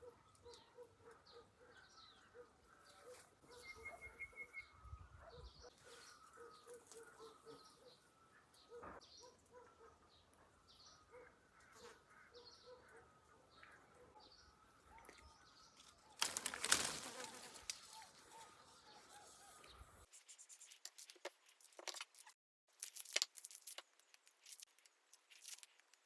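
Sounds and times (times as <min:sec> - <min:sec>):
birds chirping: 0:00.2 - 0:09.6.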